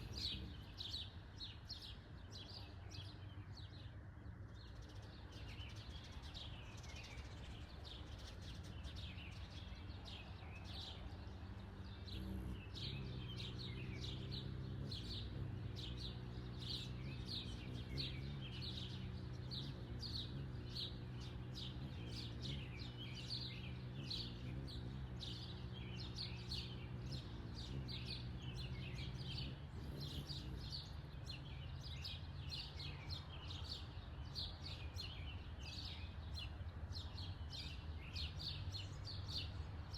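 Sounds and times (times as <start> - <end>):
low motor hum: 0.0 - 1.0, 8.1 - 32.8
birds chirping: 0.0 - 39.9.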